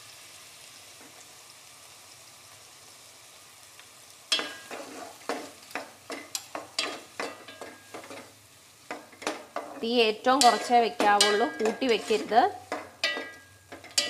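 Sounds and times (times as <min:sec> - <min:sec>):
apple frying faint sizzle: 0:00.0 - 0:14.0
spoon knocking and scraping pan: 0:04.3 - 0:14.0.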